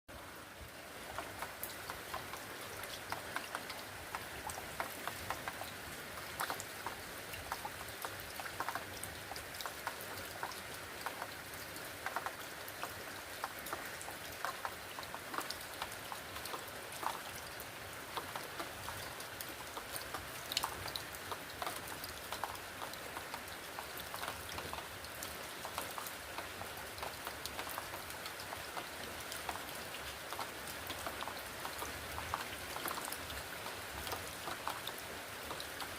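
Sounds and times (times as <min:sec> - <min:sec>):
steady rain hiss: 0:00.1 - 0:35.9
raindrops ticking on hard surface: 0:01.0 - 0:35.9.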